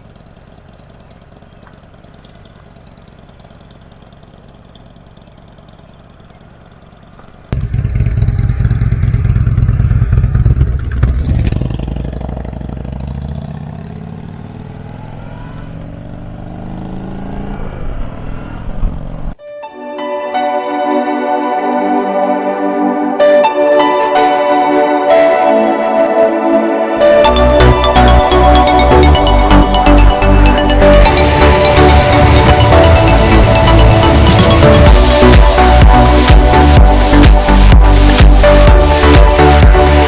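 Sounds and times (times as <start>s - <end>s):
motorcycle engine running: 0.0s - 19.4s, 27.0s - 40.0s
rushing noise: 27.0s - 40.0s.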